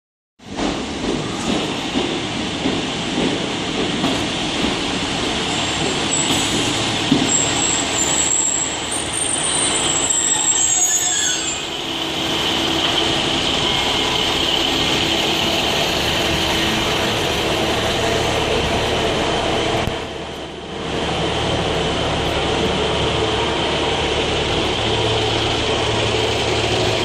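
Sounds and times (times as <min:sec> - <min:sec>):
train running noise: 0:00.4 - 0:27.0
metallic train wheel squeal: 0:06.1 - 0:15.1.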